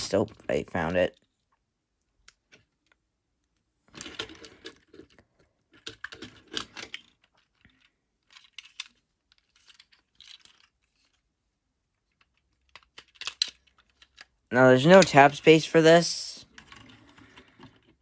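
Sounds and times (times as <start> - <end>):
hard plastic parts clattering: 3.9 - 11.2, 12.2 - 15.8.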